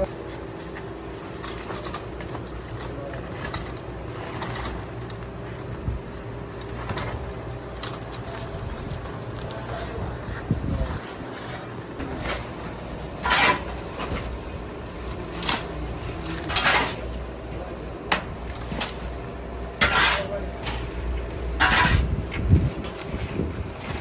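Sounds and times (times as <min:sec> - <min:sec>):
scoop scraping sand in metal pan: 0:13.2 - 0:13.7, 0:19.8 - 0:20.4, 0:21.6 - 0:22.0.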